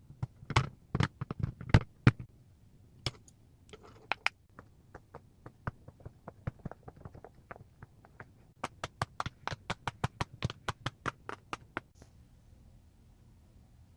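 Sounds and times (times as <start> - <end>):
rapid sharp taps: 4.5 - 12.0.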